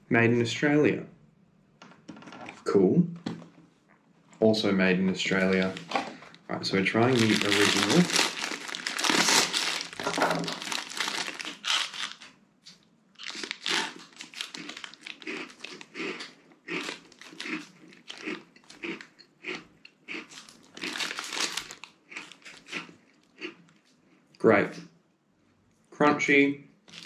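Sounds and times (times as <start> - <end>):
plastic snack packet crinkling: 5.3 - 12.4, 13.2 - 19.2, 20.1 - 23.8
person chewing crunchy biscuits: 7.0 - 12.4, 13.2 - 24.4.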